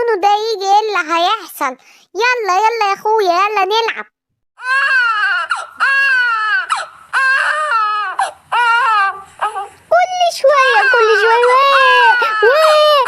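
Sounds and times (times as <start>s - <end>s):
baby crying: 4.6s - 9.8s, 10.5s - 13.0s.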